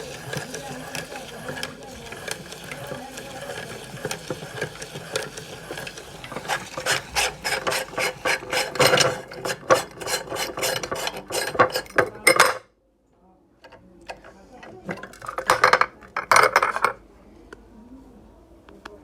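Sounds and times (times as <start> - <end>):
chillies rasping crackle: 0.0 - 11.9
meat grinder running: 0.0 - 12.2.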